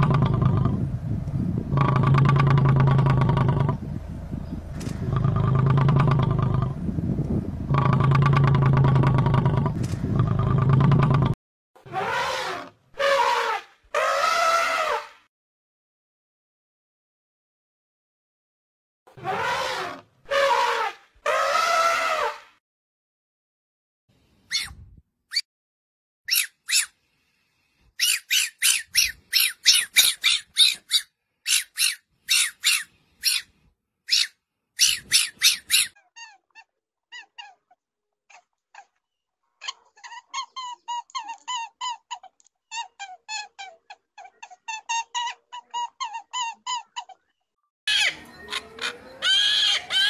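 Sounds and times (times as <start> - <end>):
harsh macaw squawks: 11.9 - 15.1, 19.2 - 22.4, 28.0 - 33.5, 34.1 - 37.6, 47.9 - 50.0
soft fox squeaks: 24.5 - 25.4, 26.3 - 26.9, 28.0 - 33.5, 34.1 - 37.7, 39.6 - 47.3
fox yelping calls: 28.0 - 33.5, 34.1 - 37.7, 47.9 - 50.0.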